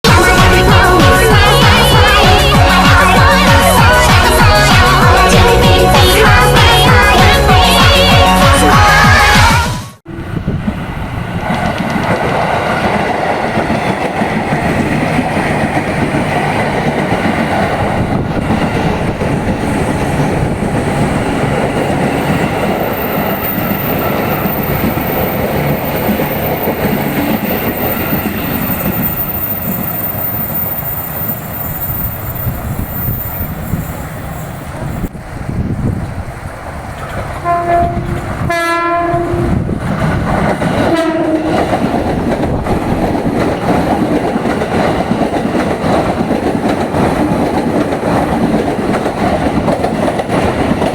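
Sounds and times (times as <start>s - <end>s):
train wheels rumbling on rail: 10.1s - 50.9s
train horn: 37.4s - 39.6s, 40.9s - 41.6s.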